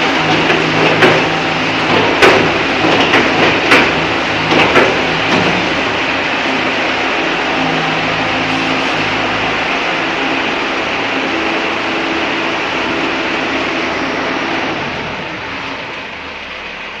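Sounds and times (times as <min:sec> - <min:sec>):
mining loader engine running: 0:00.0 - 0:17.0.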